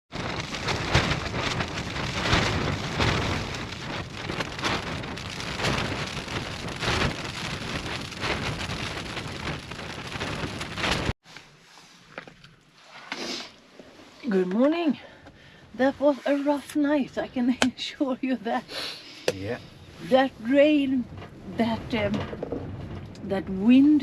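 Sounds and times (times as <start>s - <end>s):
heavy rain patter: 0.1s - 11.2s, 19.3s - 24.0s
wind rumbling on microphone: 0.1s - 11.2s, 19.3s - 24.0s.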